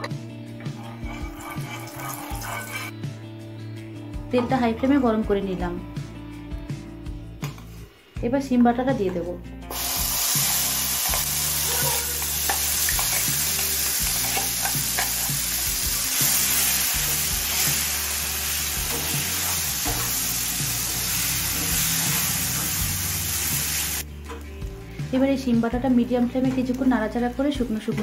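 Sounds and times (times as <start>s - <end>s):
paste sizzling in oil: 0.6s - 2.9s, 9.7s - 24.0s
spatula scraping a pan: 0.6s - 3.0s.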